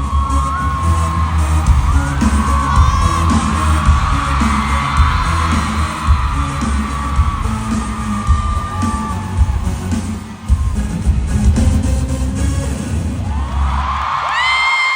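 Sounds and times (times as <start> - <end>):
live pop band with heavy bass beat: 0.0 - 14.6
audience screaming and whooping: 0.0 - 14.9.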